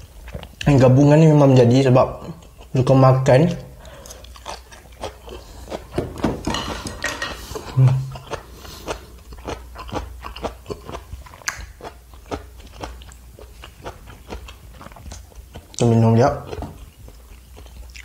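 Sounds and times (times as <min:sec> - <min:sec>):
man chewing crunchy food: 0:00.0 - 0:00.7, 0:02.2 - 0:18.0
man humming mm: 0:07.6 - 0:08.3.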